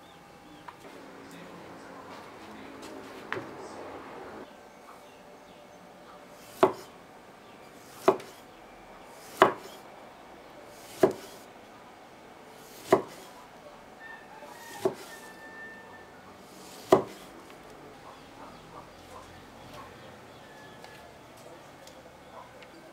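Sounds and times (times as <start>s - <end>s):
knife chopping on wooden board: 6.4s - 6.9s, 7.8s - 8.4s, 9.2s - 9.8s, 10.8s - 11.4s, 12.6s - 13.3s, 14.7s - 15.2s, 16.6s - 17.3s.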